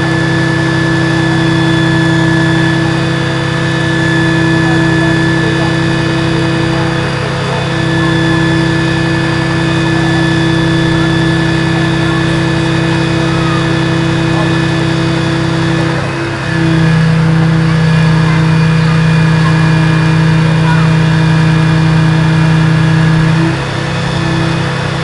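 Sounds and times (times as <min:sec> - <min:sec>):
fire engine diesel engine running: 0:00.0 - 0:25.0.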